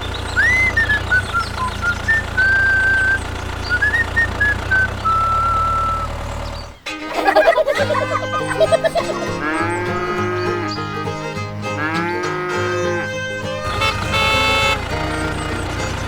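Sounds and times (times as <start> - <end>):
background music: 6.9 - 16.0
cow mooing: 7.2 - 10.9, 11.8 - 13.0.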